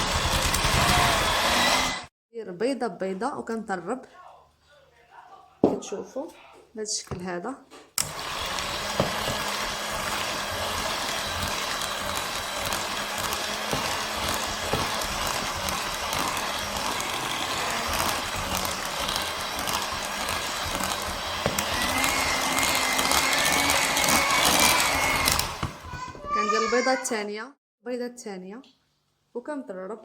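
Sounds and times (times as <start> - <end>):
electric mixer running: 0.0 - 2.1, 8.0 - 26.1.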